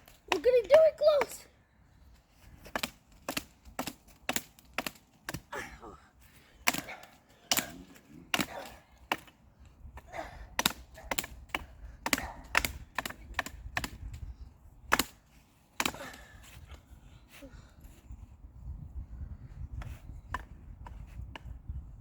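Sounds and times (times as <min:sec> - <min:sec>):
sharp knocks on a tree: 0:02.5 - 0:05.5, 0:06.6 - 0:09.4, 0:10.5 - 0:16.2.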